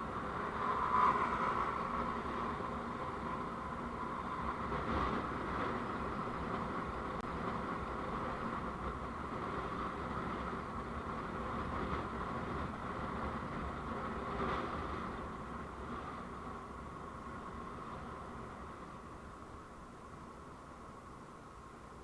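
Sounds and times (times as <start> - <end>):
vehicle road and engine noise: 0.0 - 22.0.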